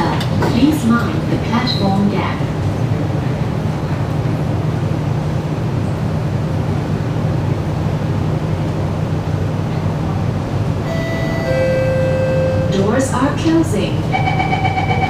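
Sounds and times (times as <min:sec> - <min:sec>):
train interior rumble: 0:00.0 - 0:15.0.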